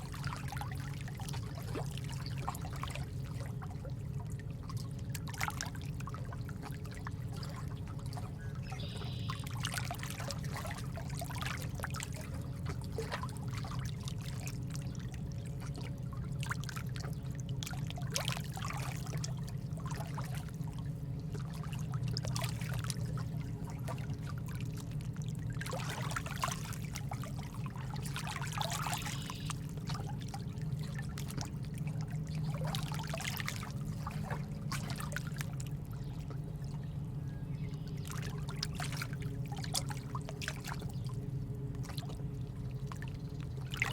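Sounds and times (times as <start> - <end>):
steady low hum: 0.0 - 43.9
water trickling and pouring: 16.4 - 36.7.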